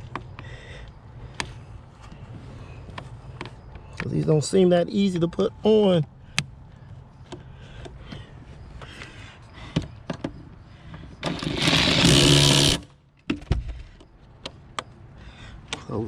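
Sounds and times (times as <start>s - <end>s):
parts clicking and knocking: 0.0s - 2.2s, 2.8s - 4.2s, 7.2s - 15.0s
cordless power tool whirring: 11.2s - 12.9s.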